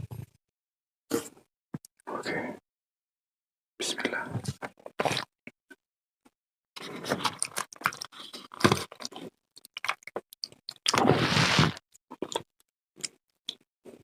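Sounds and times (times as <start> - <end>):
wet chewing and smacking: 6.8 - 11.0, 12.1 - 13.6.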